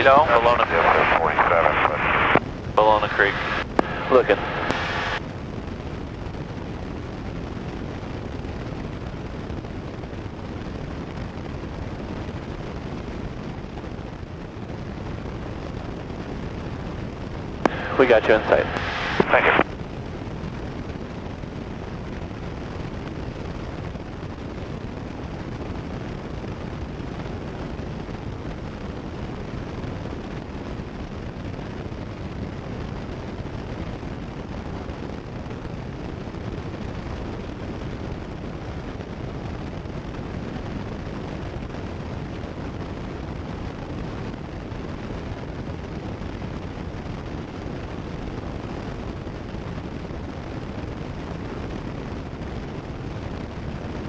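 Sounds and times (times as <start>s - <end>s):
propeller plane engine droning: 0.0s - 5.7s.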